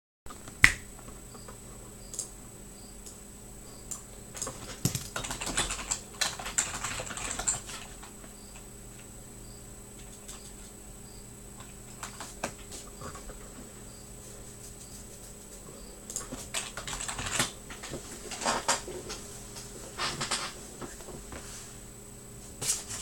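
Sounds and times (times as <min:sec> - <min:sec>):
faint high whine: 0:00.4 - 0:04.2, 0:08.0 - 0:16.7
keys clicking: 0:03.9 - 0:08.1, 0:16.0 - 0:18.6.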